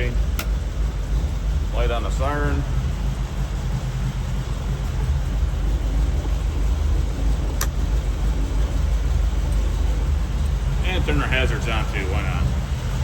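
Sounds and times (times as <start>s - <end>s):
car engine idling: 0.0s - 13.0s
sharp click: 0.4s - 0.6s.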